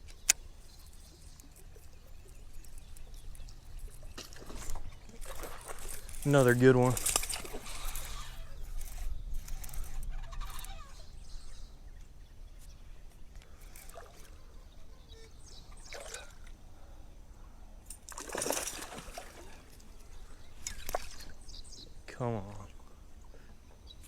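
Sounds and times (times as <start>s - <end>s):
water splashing: 18.1s - 20.0s.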